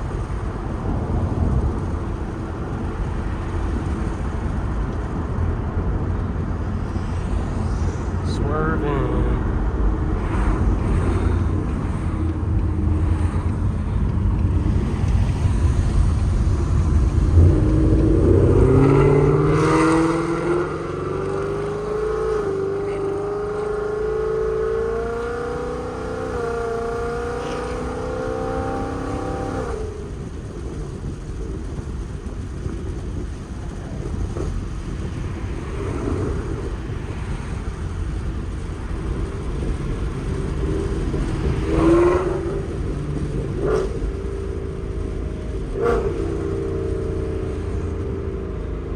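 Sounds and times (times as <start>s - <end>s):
car exhaust rumble and acceleration: 0.0s - 48.9s.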